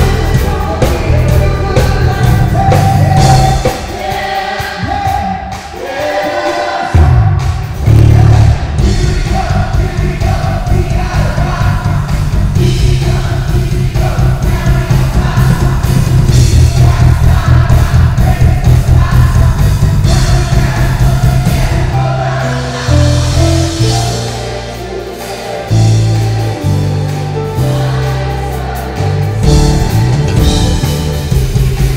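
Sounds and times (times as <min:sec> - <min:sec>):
group singing: 0:00.0 - 0:31.9
live band music: 0:00.0 - 0:31.9
electric bass lines: 0:07.8 - 0:25.0, 0:25.7 - 0:31.9.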